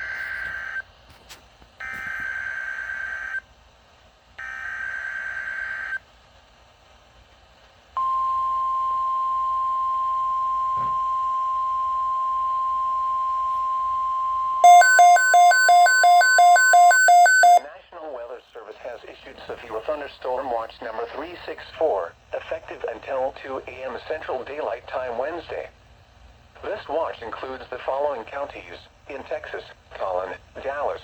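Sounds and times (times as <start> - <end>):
steady warning alarm tone: 8.0 - 17.6
rapid pulsing beeps: 14.6 - 17.6.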